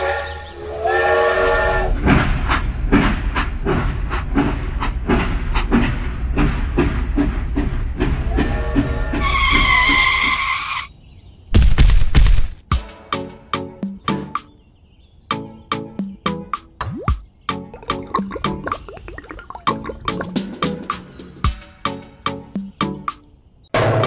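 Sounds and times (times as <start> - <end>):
train chuffing: 0.0 - 10.5.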